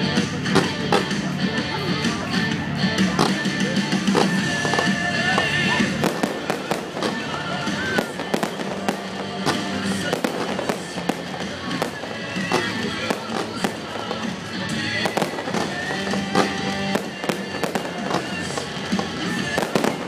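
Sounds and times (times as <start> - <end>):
fireworks bangs and crackles: 0.0 - 20.0
music playing: 0.0 - 20.0.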